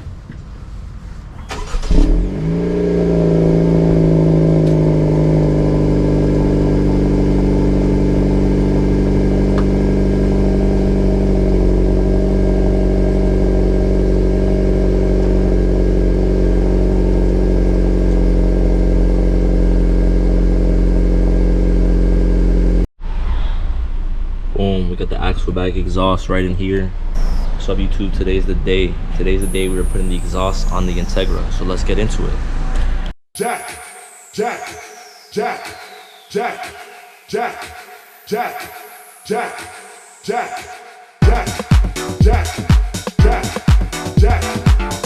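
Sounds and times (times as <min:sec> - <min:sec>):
car engine starting and idling: 0:00.0 - 0:33.2.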